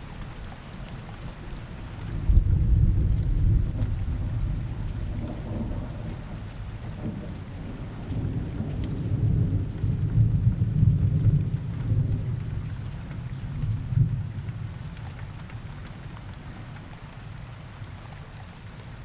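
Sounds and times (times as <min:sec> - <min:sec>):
steady rain: 0:00.0 - 0:19.0
low rolling thunder: 0:02.1 - 0:12.7.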